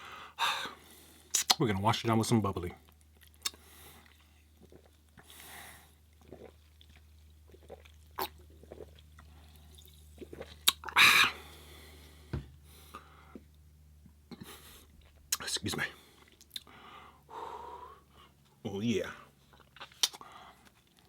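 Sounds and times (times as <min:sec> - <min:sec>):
mouth sounds of eating: 0:02.7 - 0:11.5, 0:14.3 - 0:16.8.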